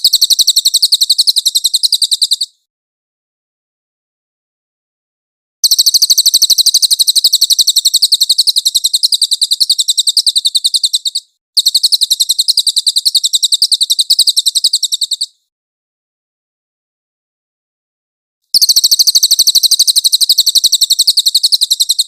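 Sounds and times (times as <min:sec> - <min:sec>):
songbird rapid high trill: 0:00.0 - 0:02.6, 0:05.6 - 0:15.4, 0:18.5 - 0:22.0.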